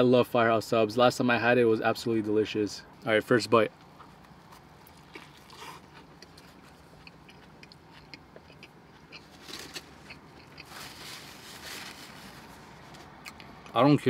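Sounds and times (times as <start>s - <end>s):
chewing sandwich: 3.8s - 13.8s
paper napkin rustle: 10.6s - 13.1s.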